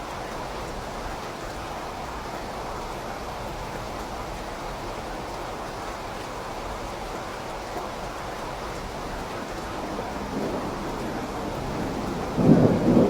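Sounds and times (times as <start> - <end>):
steady rain falling: 0.0 - 13.0
thunder rumbling: 9.7 - 13.0.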